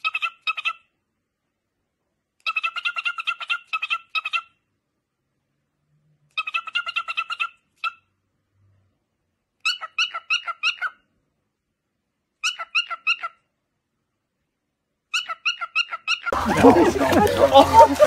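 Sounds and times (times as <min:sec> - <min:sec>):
cockatiel chirping: 0:09.6 - 0:11.0, 0:12.4 - 0:13.4, 0:15.1 - 0:16.3.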